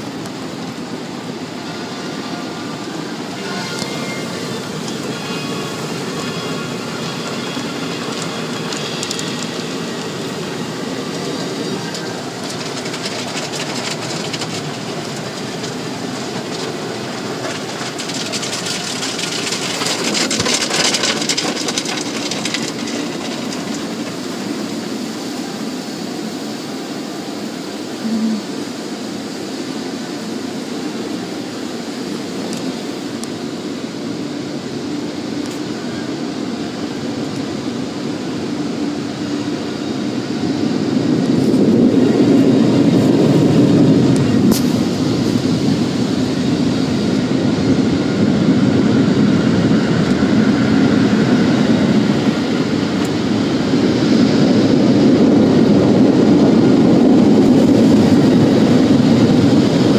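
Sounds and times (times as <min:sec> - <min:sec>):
hissing water spray: 0:00.0 - 0:38.3, 0:41.0 - 0:47.4
car wash rumbling: 0:00.0 - 0:59.9.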